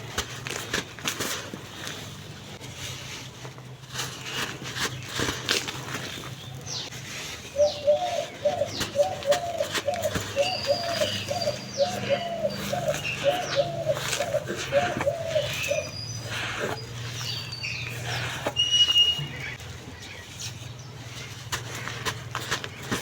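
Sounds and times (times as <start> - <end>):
birds chirping: 4.5 - 23.0
bird cooing: 7.5 - 19.6.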